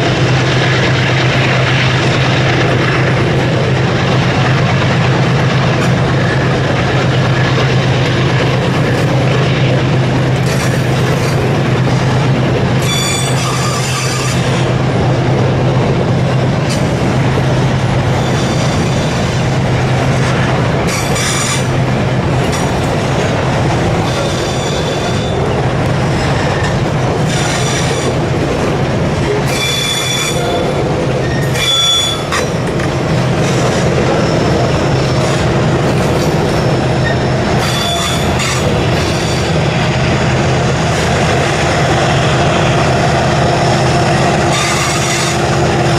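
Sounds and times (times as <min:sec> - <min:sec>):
freight train rumbling past: 0:00.0 - 0:45.9
train wheels squealing: 0:12.8 - 0:14.6, 0:18.1 - 0:19.3, 0:24.0 - 0:28.2, 0:29.5 - 0:32.6, 0:34.1 - 0:35.4, 0:36.2 - 0:39.5.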